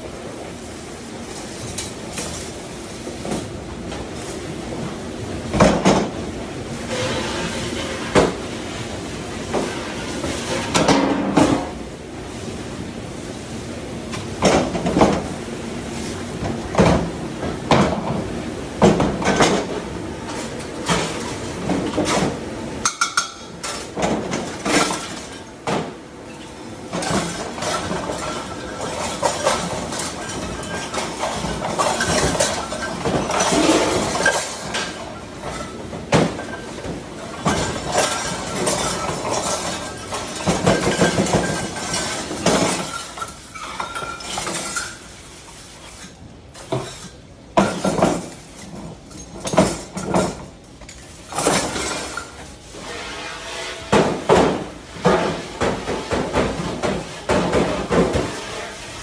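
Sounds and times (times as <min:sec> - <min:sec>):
dishes and cutlery clattering: 0:22.0 - 0:25.4, 0:27.0 - 0:36.6, 0:37.3 - 0:45.0.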